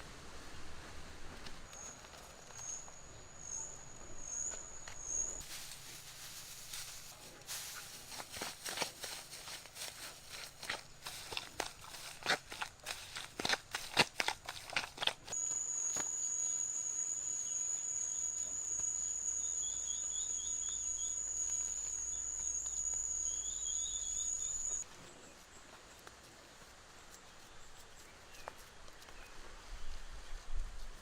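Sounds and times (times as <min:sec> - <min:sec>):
high-pitched insect trill: 0:15.3 - 0:24.8.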